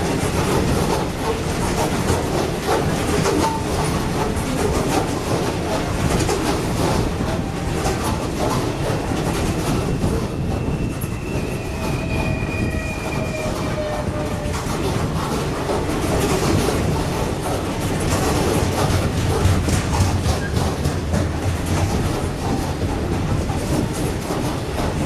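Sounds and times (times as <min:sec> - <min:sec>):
train wheels clattering over joints: 0:00.0 - 0:25.0
thin wheel squeal: 0:10.0 - 0:14.5.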